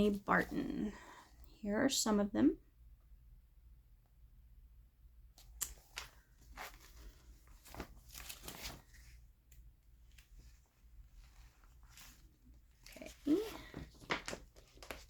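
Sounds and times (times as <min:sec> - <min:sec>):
magazine pages rustling: 0:05.7 - 0:09.3, 0:10.0 - 0:15.0.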